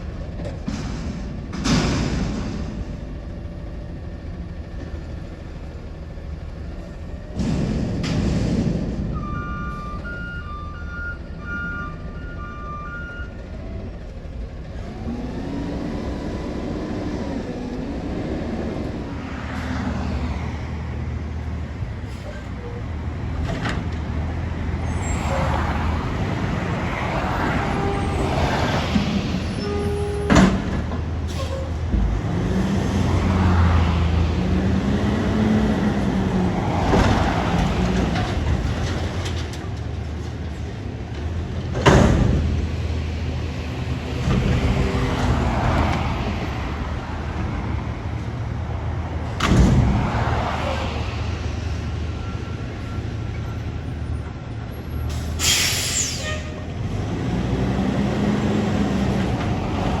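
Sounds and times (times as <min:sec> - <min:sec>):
garbage truck engine revving: 0:04.5 - 0:22.2, 0:22.8 - 0:53.2, 0:56.6 - 1:00.0
loud bangs: 0:07.2 - 0:09.8
air brake hiss: 0:55.1 - 0:56.5.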